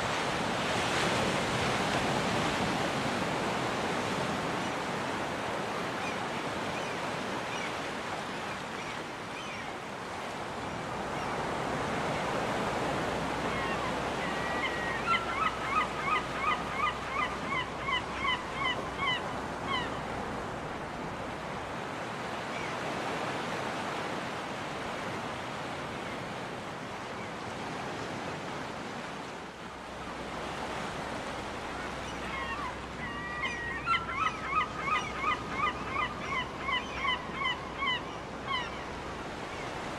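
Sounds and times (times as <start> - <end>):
surf washing on beach: 0.0 - 33.7
seagull calling: 13.5 - 20.0, 31.8 - 38.9.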